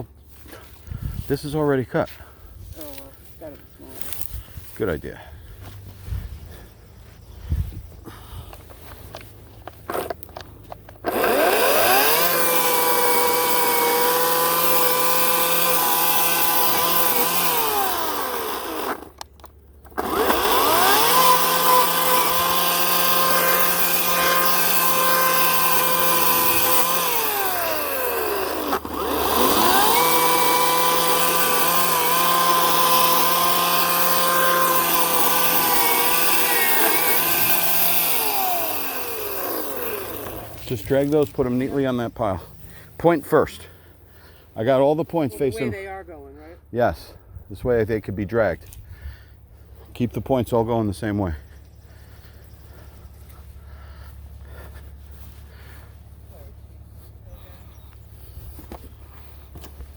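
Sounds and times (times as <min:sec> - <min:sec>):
electric chainsaw cutting wood: 0:11.0 - 0:41.7.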